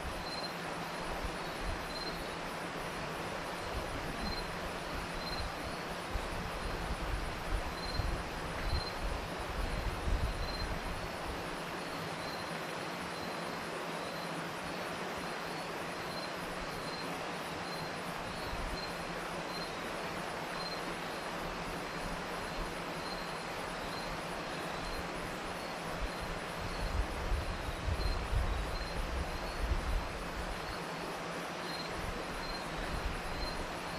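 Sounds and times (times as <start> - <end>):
crickets chirping: 0.0 - 33.9
river flowing: 0.0 - 33.9.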